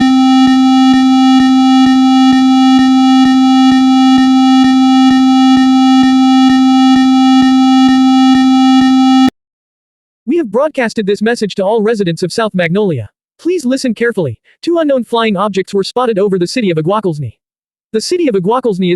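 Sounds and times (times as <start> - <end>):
loud low electronic buzz: 0.0 - 9.3.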